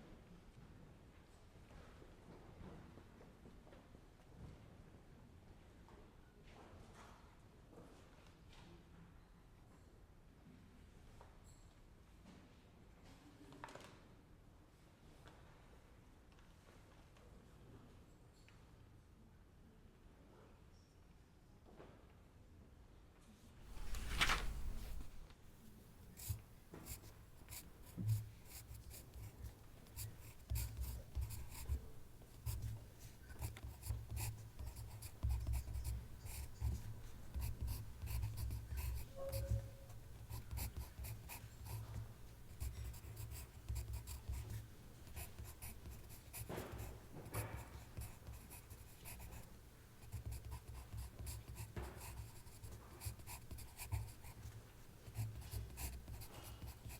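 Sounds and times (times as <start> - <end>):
pen scratching on paper: 23.7 - 25.2, 26.2 - 56.9.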